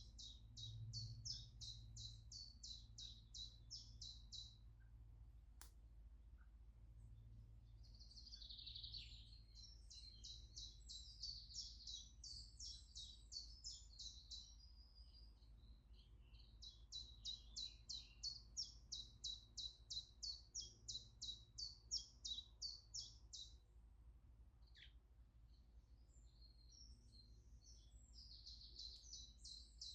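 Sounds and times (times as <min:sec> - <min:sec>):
faint low outdoor rumble: 0:00.0 - 0:10.7.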